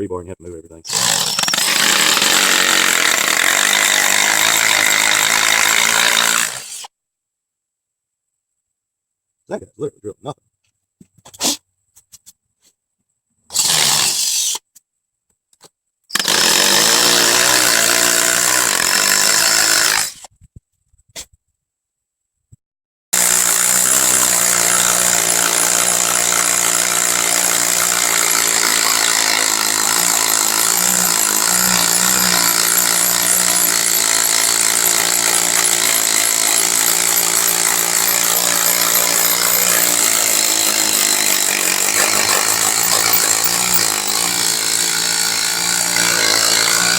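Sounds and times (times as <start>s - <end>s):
hammer drill boring into concrete: 0.9s - 6.9s, 13.5s - 14.4s, 16.1s - 20.3s, 23.2s - 46.9s.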